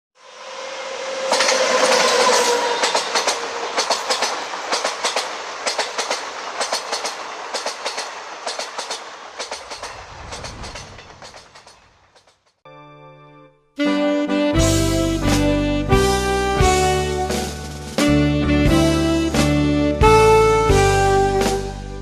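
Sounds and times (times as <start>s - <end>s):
train horn: 0.2s - 4.5s, 13.8s - 22.0s
train wheels clattering over rail joints: 1.2s - 12.6s.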